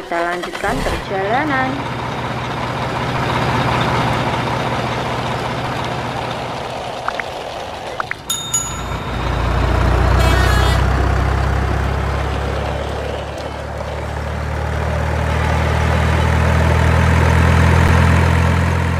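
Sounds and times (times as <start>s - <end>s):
heavy truck engine running: 0.0s - 18.9s
brief high-pitched sound: 8.3s - 9.6s.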